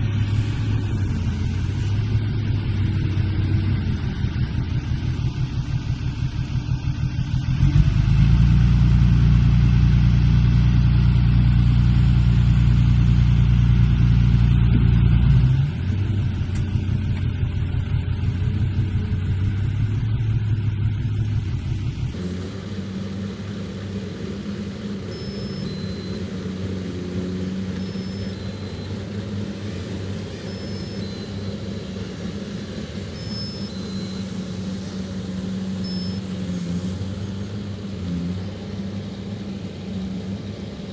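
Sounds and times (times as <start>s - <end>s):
heavy diesel engine running: 0.0s - 40.9s
short high-pitched beeps: 25.1s - 26.4s, 27.8s - 29.0s, 30.4s - 32.3s, 33.0s - 34.7s, 35.8s - 36.4s.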